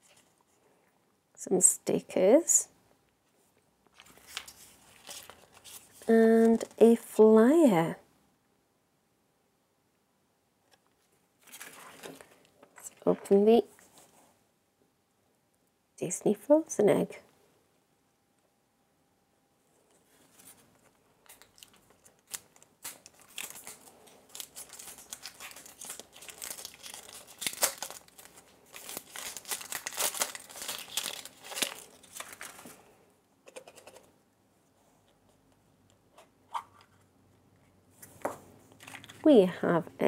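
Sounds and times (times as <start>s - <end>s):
wrapper crackling and rustling: 3.9s - 6.8s, 11.4s - 13.3s, 20.1s - 32.9s, 38.7s - 39.4s.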